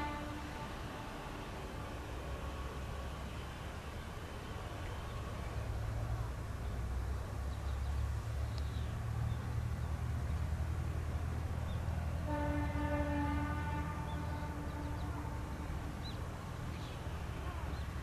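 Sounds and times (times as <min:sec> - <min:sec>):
train horn: 0:00.0 - 0:01.5, 0:12.2 - 0:15.9
diesel train rumbling: 0:00.0 - 0:18.0.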